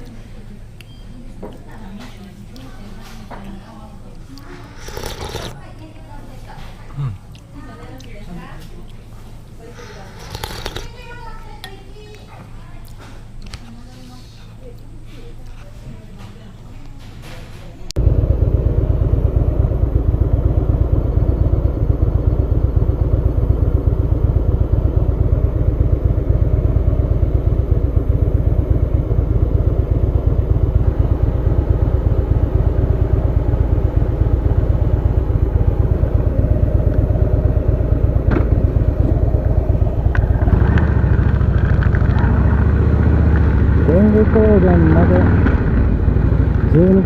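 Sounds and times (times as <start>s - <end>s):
motorcycle engine rumbling: 2.8s - 6.3s, 9.3s - 12.1s, 18.0s - 47.0s.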